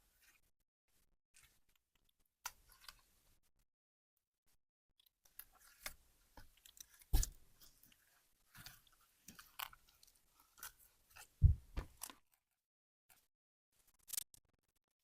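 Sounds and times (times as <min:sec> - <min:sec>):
wet thump: 0:11.4 - 0:12.0.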